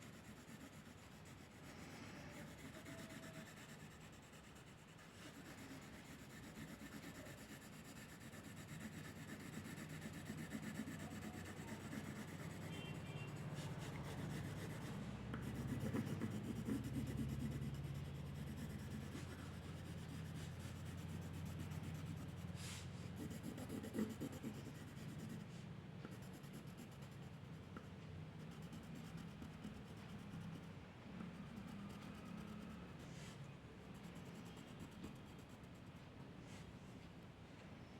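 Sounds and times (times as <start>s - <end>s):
drawing strokes on paper: 0.0s - 25.5s, 26.1s - 27.4s.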